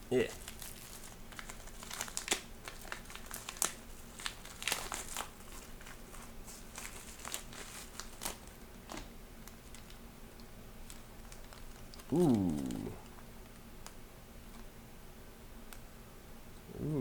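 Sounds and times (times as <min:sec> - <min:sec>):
plastic packaging crinkling: 0:00.2 - 0:10.0, 0:10.8 - 0:13.2.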